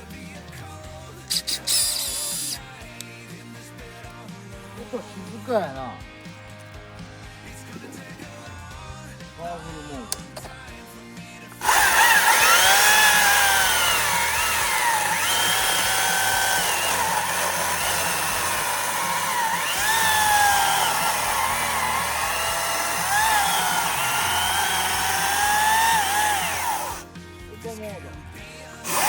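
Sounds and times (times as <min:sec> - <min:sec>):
battery chainsaw running: 0:01.3 - 0:02.7, 0:11.6 - 0:27.1.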